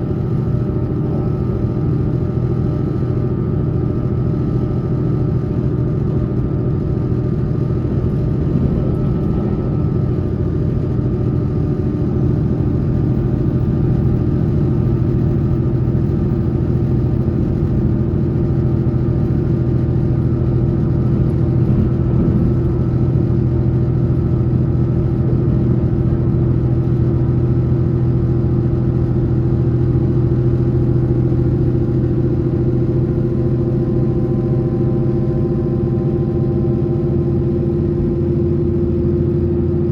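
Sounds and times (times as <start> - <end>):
train steady hum: 0.0 - 39.9
train wheels rumbling on rails: 5.8 - 28.3.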